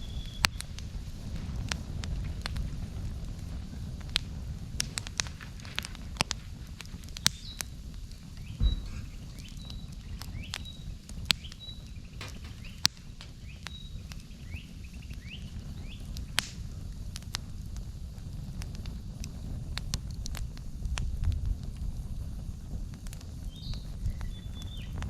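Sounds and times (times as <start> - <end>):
campfire crackling and popping: 0.0 - 25.0
bird chirping: 8.4 - 15.5.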